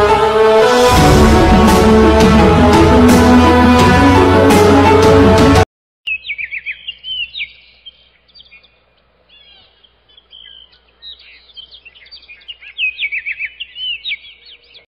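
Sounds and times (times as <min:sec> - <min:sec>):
songbirds chirping and trilling: 0:06.1 - 0:14.9.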